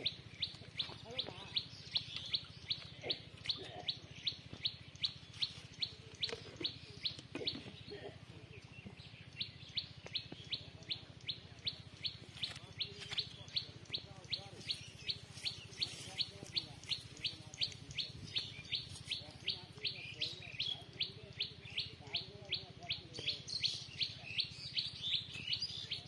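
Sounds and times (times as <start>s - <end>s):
bird chirping: 0.0s - 26.0s.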